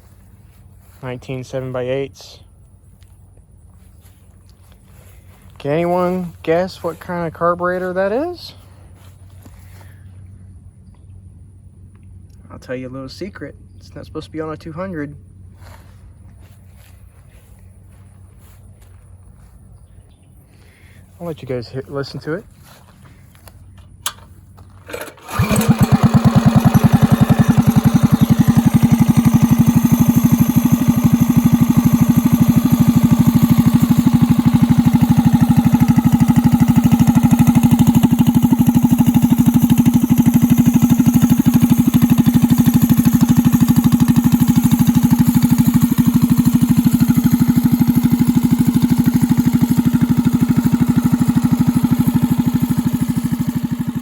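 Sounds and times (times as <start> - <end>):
minibike engine running loud: 0.0 - 2.4, 22.1 - 54.0.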